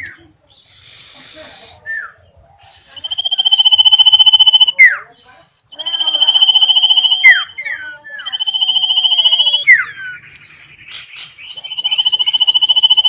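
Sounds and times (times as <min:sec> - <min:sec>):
bird trill and whistled notes: 0:02.9 - 0:05.0, 0:05.7 - 0:13.0.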